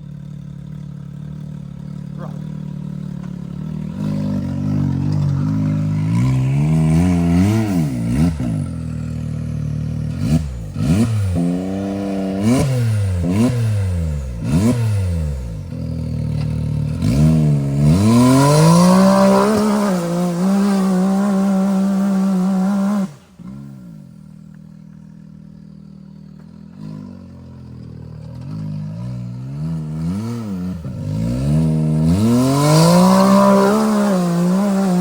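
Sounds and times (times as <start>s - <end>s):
utv engine revving: 0.0s - 35.0s
knocks and scraping over rough ground: 1.9s - 12.4s, 15.4s - 22.8s.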